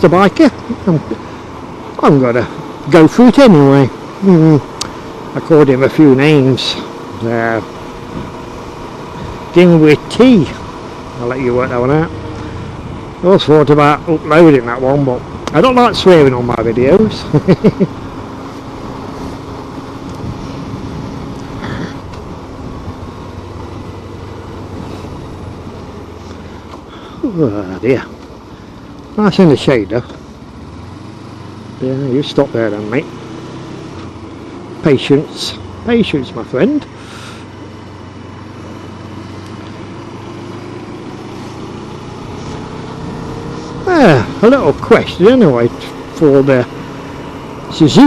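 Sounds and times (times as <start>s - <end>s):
motorcycle engine humming: 0.0s - 48.0s.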